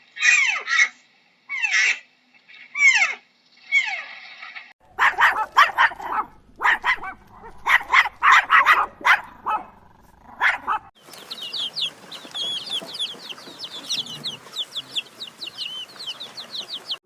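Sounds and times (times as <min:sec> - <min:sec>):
dog barking: 0:04.9 - 0:10.9.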